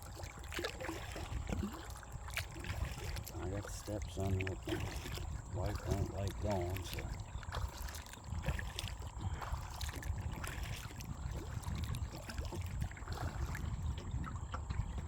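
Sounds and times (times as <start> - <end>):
paddle splashing water: 0.0 - 15.0
steady low rumble: 3.2 - 10.4.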